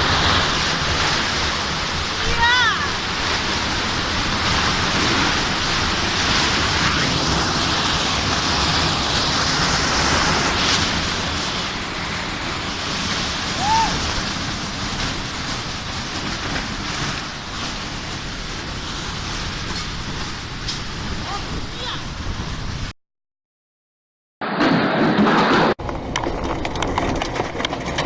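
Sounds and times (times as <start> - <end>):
storm wind on microphone: 0.0 - 22.9.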